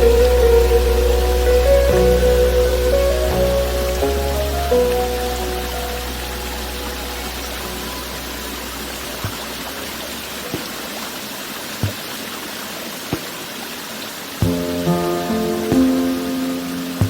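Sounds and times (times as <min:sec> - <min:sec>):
soft music: 0:00.0 - 0:10.2, 0:14.4 - 0:17.0
rushing water: 0:00.0 - 0:17.0
soft low thumps: 0:14.4 - 0:16.4.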